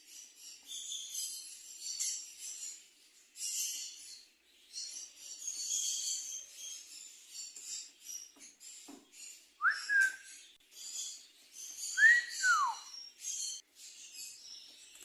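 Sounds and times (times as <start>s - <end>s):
parrot whistling: 9.6s - 10.3s, 12.0s - 12.9s
soft scratchy chirps and clicks: 12.8s - 15.0s.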